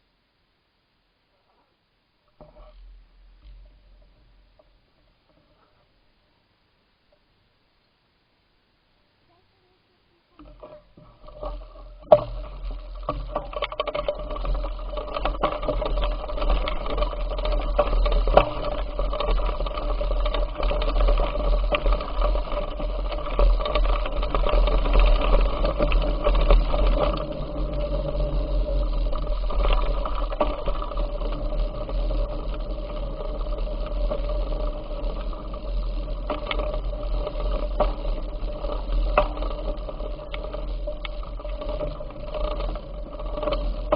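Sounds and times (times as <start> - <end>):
bicycle mechanical whir: 10.4 - 43.9
low rumble: 10.4 - 43.9
small rattling clicks: 10.4 - 43.9.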